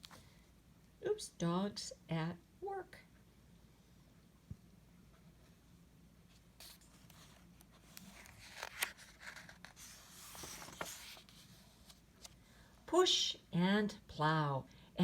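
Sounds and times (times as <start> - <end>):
book pages turning: 6.3 - 12.4
paper rustling: 6.3 - 12.4.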